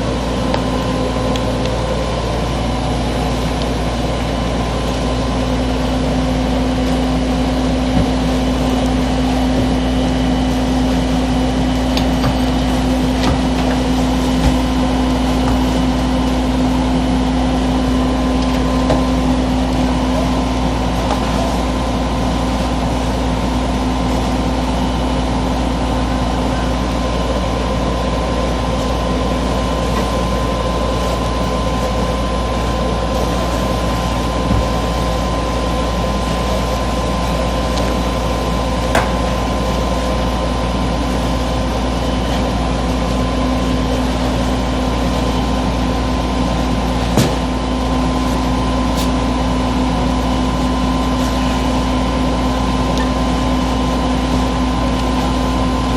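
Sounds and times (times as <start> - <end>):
mechanical drone hum: 0.0 - 55.9.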